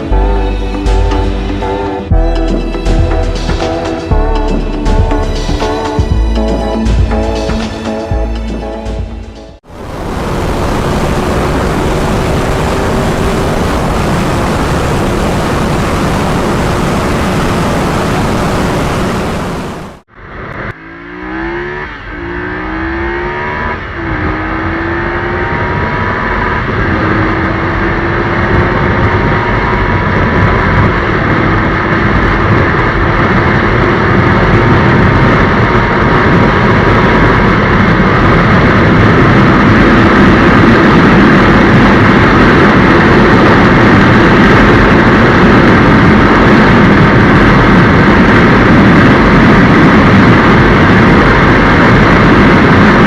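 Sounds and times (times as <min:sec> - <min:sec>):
motorcycle engine accelerating: 0:00.0 - 0:53.0
wind rush: 0:09.5 - 0:20.7, 0:22.8 - 0:53.0.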